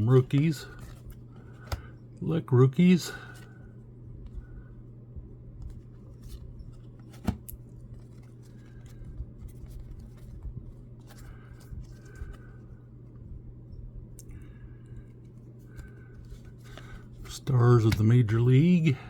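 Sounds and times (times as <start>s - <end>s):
cards being flipped through: 0.0s - 1.9s, 5.6s - 12.6s, 15.0s - 18.4s.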